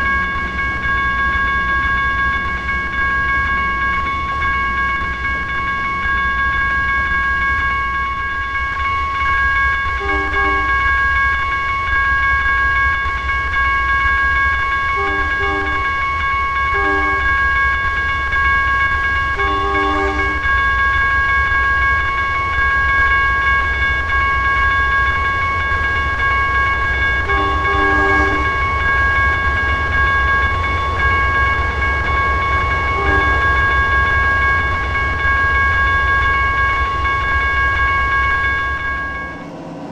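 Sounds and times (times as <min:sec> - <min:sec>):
steady high-pitched tone: 0:00.0 - 0:39.9
train rumbling past: 0:00.0 - 0:39.9
short train horn toots: 0:10.0 - 0:10.7, 0:19.4 - 0:20.4, 0:27.3 - 0:28.4.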